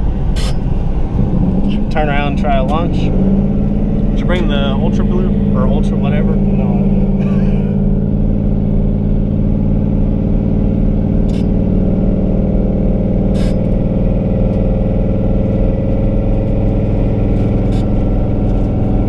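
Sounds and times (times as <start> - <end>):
car engine drone from cabin: 0.0 - 19.0.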